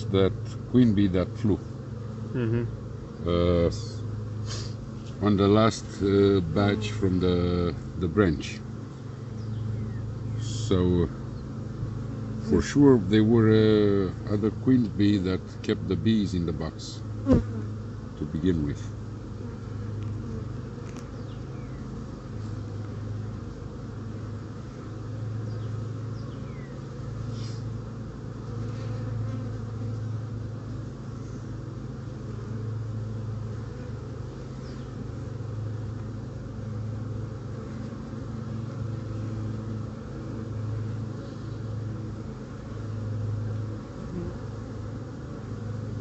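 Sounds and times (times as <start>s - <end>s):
honeybee colony humming: 0.0s - 46.0s.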